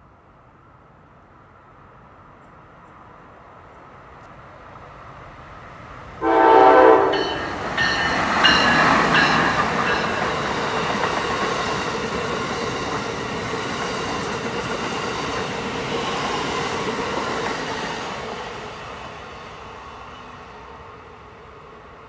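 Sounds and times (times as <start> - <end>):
train wheels rushing on rails: 4.4 - 22.0.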